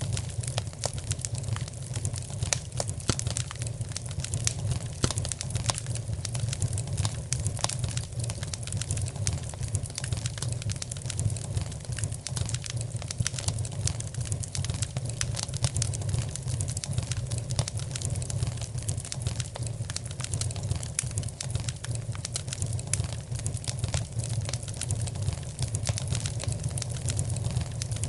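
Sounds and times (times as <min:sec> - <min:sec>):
low rumble of flames: 0:00.0 - 0:28.0
wood fire crackling: 0:00.0 - 0:28.0.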